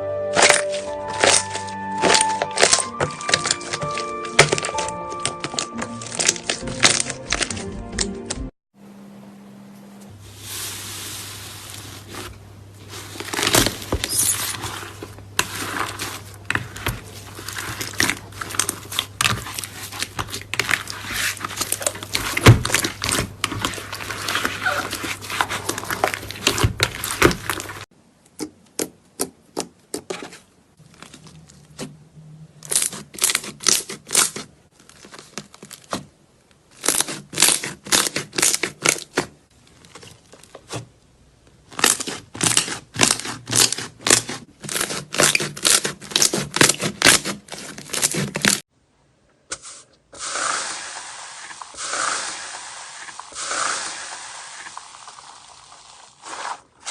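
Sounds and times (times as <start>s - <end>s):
slime crackling and popping: 0.4s - 7.6s, 36.7s - 39.2s, 41.7s - 48.6s, 50.5s - 56.9s.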